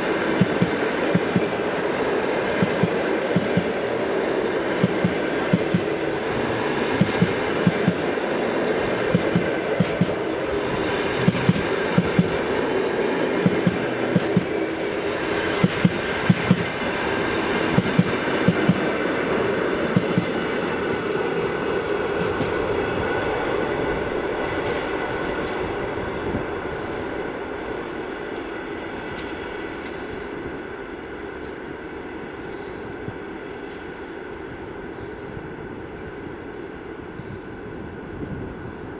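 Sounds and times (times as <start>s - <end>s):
train wheels clacking over rail joint: 0.0s - 22.8s
rolling rumble of railway wagons: 0.0s - 38.9s.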